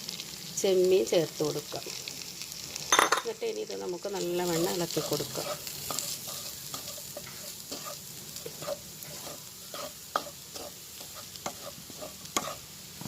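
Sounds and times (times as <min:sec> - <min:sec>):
oil sizzling: 0:00.0 - 0:13.0
utensil scraping a frying pan: 0:04.4 - 0:13.0.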